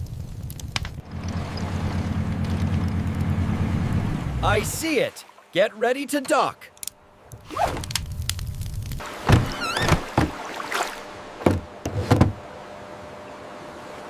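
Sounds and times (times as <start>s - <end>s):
boat motor rumble: 1.0s - 5.0s, 7.0s - 14.0s
wavering creak: 7.3s - 10.3s
boat knocking against pier: 9.0s - 10.5s, 11.4s - 12.4s.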